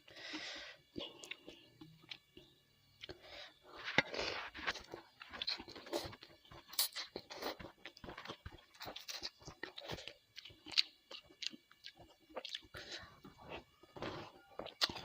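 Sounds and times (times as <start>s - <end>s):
wet chewing and smacking: 3.9s - 15.0s.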